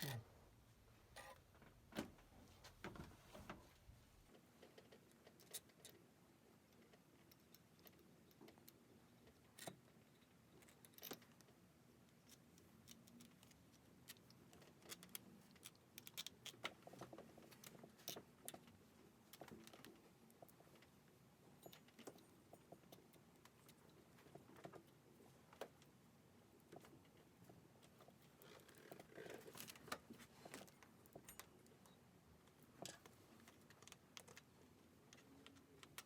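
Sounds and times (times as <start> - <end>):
faint clicks and light taps: 26.6 - 36.0.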